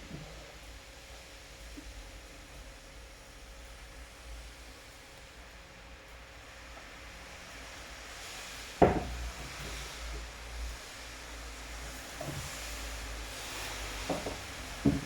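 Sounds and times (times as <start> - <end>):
rain hiss: 0.0 - 15.0
sharp knocks: 8.8 - 9.2.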